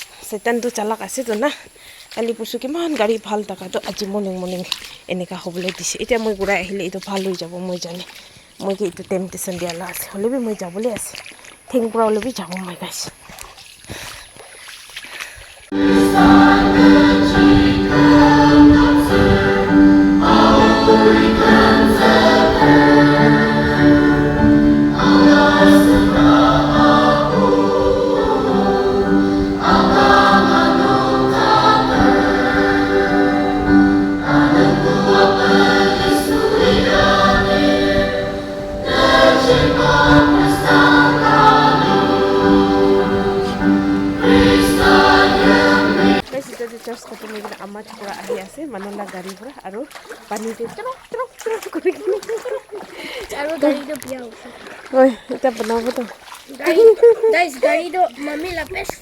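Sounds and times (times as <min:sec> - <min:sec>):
choir singing a hymn: 0:15.7 - 0:46.3.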